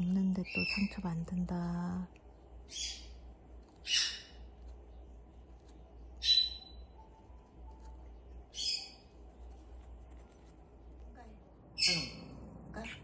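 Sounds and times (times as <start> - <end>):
parrot harsh chirping calls: 2.7 - 3.2, 3.8 - 4.4, 6.2 - 6.8.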